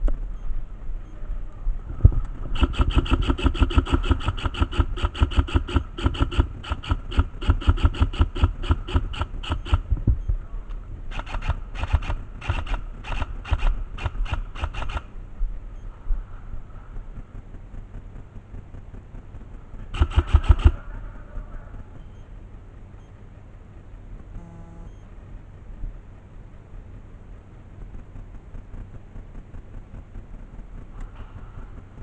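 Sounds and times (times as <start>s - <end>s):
airsoft gun rapid shots: 2.4s - 9.9s, 11.1s - 15.2s, 19.8s - 21.2s.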